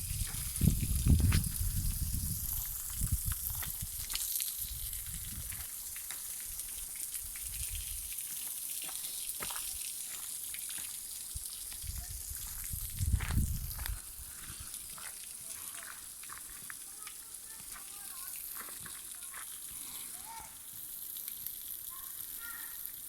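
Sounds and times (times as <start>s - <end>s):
wind on microphone: 0.0s - 5.6s, 7.4s - 8.0s, 11.8s - 14.3s
waterfall hiss: 0.0s - 23.0s.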